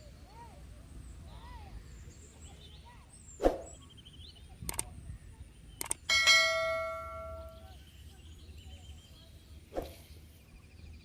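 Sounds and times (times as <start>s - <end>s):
sharp clicks: 4.6s - 4.9s, 5.8s - 6.1s
bright metallic ring: 6.1s - 7.7s.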